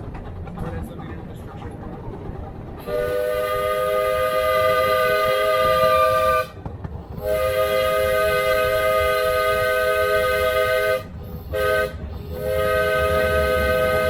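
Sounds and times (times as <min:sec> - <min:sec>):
low rumble of train running: 0:00.0 - 0:14.0
steam locomotive whistle: 0:02.8 - 0:06.6, 0:07.2 - 0:14.0.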